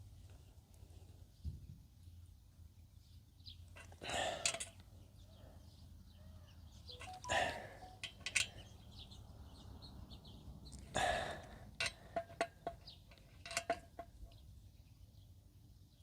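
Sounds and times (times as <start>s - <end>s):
faint bird chirps: 5.2s - 9.8s
socket wrench clinking on bolts: 7.0s - 8.6s, 11.8s - 14.1s.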